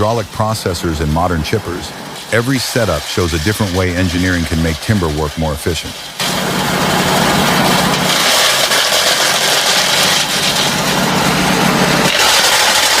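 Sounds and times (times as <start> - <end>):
machine engine hum: 0.0 - 13.0
mechanical hiss: 0.0 - 13.0.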